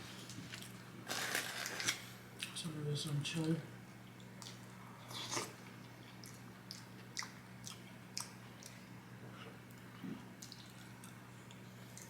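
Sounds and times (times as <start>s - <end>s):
chewing and wet mouth sounds: 3.4s - 12.0s.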